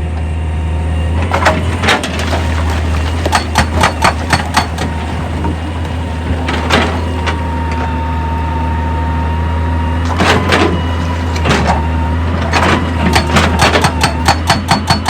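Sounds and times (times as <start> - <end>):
diesel engine running with whine: 0.0 - 15.0
metal clanks and knocks: 1.2 - 5.6.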